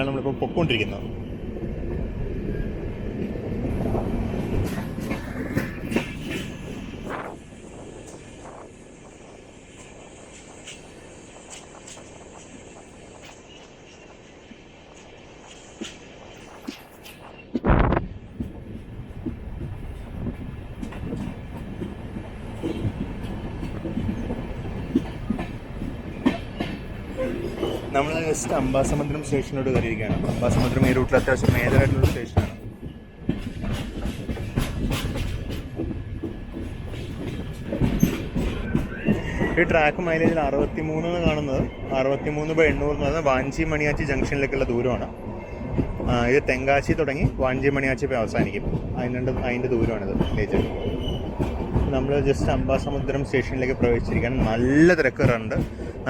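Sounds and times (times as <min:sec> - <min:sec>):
train coach rumbling: 0:00.0 - 0:56.0
train wheels clicking over rail joints: 0:18.3 - 0:41.8, 0:45.7 - 0:56.0.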